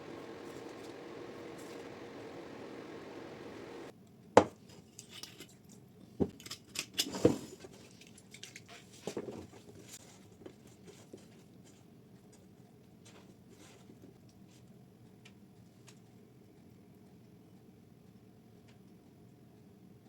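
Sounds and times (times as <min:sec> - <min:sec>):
steady hum: 0:00.0 - 0:03.9.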